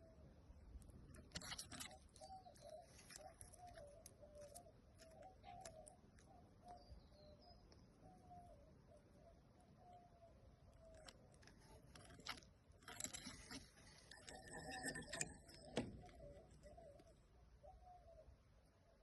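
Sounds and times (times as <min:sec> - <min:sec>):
bird calling: 0:01.3 - 0:12.4, 0:13.0 - 0:18.4.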